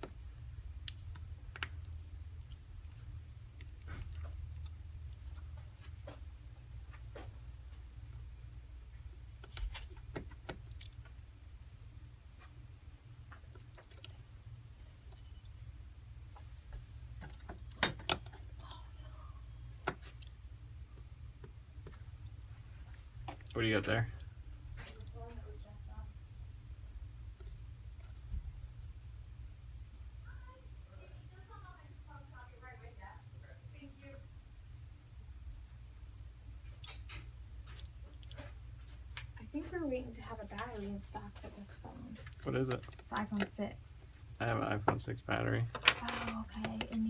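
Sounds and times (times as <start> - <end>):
steady low hum: 0.0 - 47.0
small clicks of cable connectors: 0.8 - 6.2, 13.3 - 14.2.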